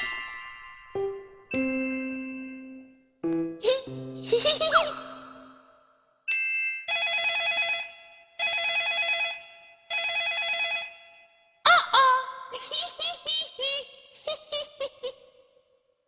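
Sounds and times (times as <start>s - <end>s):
telephone ringing: 6.9s - 11.0s.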